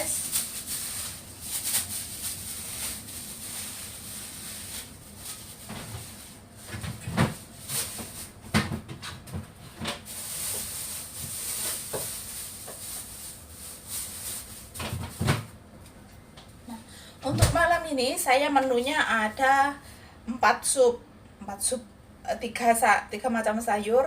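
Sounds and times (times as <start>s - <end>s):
kitchenware knocks and clunks: 8.4s - 10.1s.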